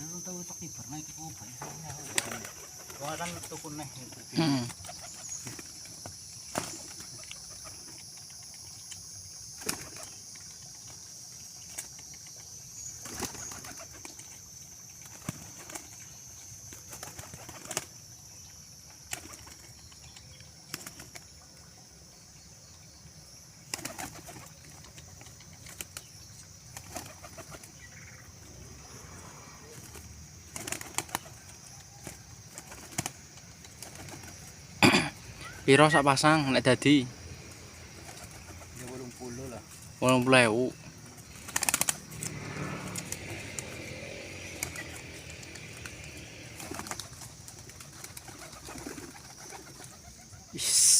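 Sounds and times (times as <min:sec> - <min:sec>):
steady high hiss: 0:00.0 - 0:24.8, 0:32.6 - 0:42.3, 0:42.9 - 0:50.9
pigeon wings flapping: 0:01.7 - 0:08.2, 0:09.5 - 0:10.2, 0:13.0 - 0:14.4, 0:15.0 - 0:16.0, 0:16.6 - 0:18.0, 0:19.0 - 0:19.8, 0:20.7 - 0:21.3, 0:23.7 - 0:27.8, 0:29.6 - 0:34.6, 0:38.0 - 0:39.1, 0:41.1 - 0:50.5.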